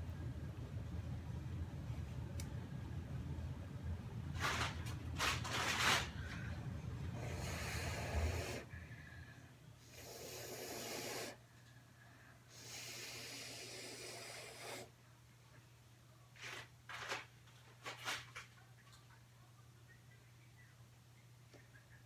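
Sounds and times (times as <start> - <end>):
steady low hum: 0.0 - 16.9
blowing air hissing: 7.2 - 8.7, 9.8 - 11.4, 12.5 - 14.9.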